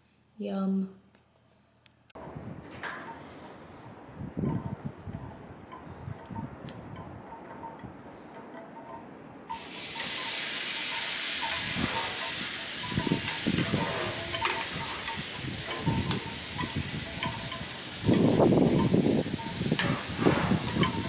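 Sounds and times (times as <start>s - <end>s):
steaks sizzling on a grill: 9.5s - 21.0s.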